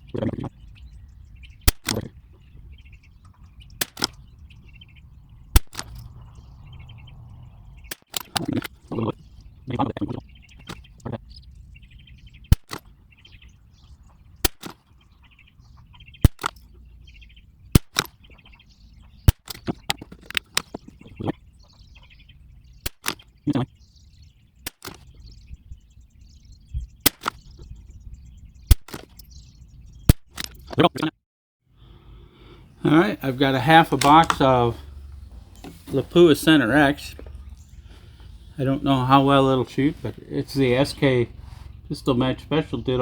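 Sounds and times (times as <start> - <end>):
faint birds chirping: 0.0 - 43.0
rifle bolt clicking: 1.7 - 2.1, 3.7 - 4.3, 5.5 - 6.2, 7.9 - 8.8, 12.5 - 12.9, 14.4 - 14.8, 16.2 - 16.7, 17.8 - 18.2, 19.2 - 20.9, 22.8 - 23.3, 24.7 - 25.1, 27.1 - 27.5, 28.7 - 29.3, 30.1 - 30.8
rifle shots cracking: 3.8 - 4.3, 5.5 - 6.4, 16.2 - 16.6.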